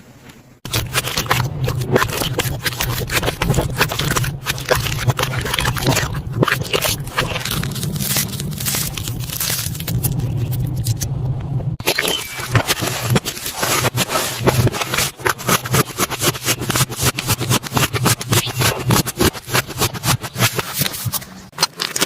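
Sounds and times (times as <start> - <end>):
slime crackling and popping: 0.7 - 11.0.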